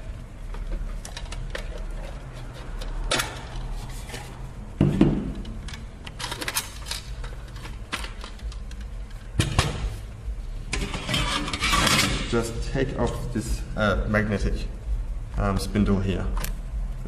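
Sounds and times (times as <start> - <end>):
small parts clicking and tapping: 5.4 - 9.4.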